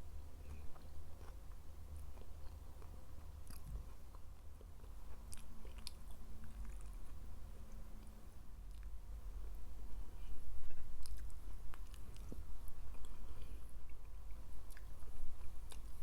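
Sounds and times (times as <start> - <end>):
steady low hum: 0.0 - 16.0
person chewing and biting: 0.4 - 7.2.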